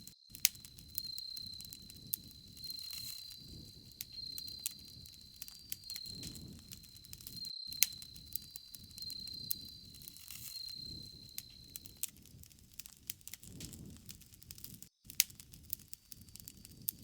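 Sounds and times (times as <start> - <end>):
high insect trill: 0.0 - 12.4
bonfire crackling and popping: 0.0 - 17.0.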